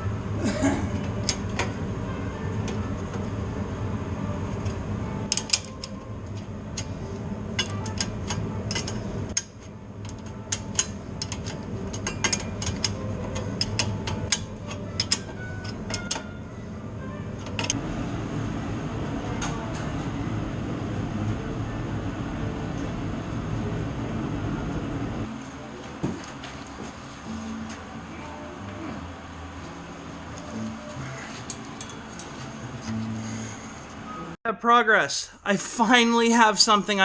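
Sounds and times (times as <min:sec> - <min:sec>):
steady low hum: 0:00.0 - 0:34.4
hand tools clicking and tapping metal: 0:05.2 - 0:07.0, 0:07.6 - 0:16.3, 0:17.4 - 0:17.8, 0:31.3 - 0:33.0.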